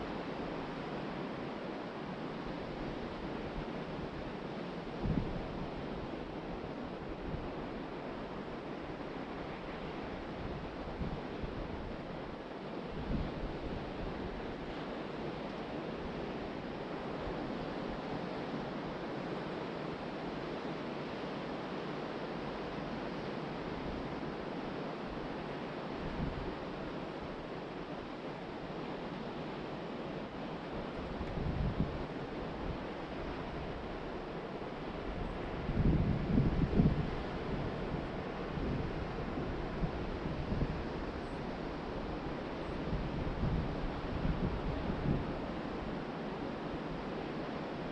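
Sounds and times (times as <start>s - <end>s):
wind on microphone: 30.9s - 46.0s.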